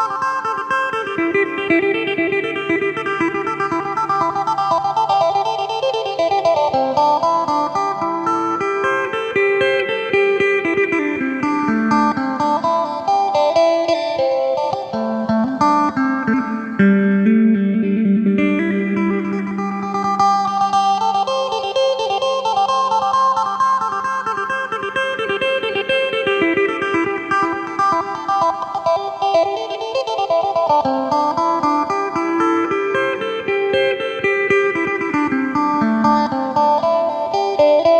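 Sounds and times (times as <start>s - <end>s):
plucked lute melody: 0.6s - 9.8s.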